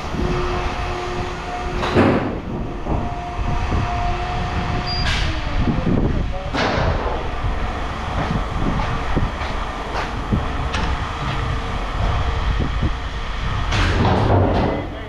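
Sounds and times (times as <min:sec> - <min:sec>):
low mechanical rumble: 0:00.0 - 0:15.0
knocks and rattles: 0:06.5 - 0:14.9.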